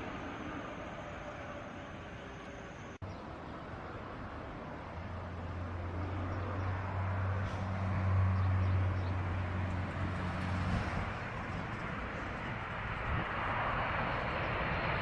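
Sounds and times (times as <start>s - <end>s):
jet engine roar: 0.0s - 3.0s, 9.2s - 15.0s.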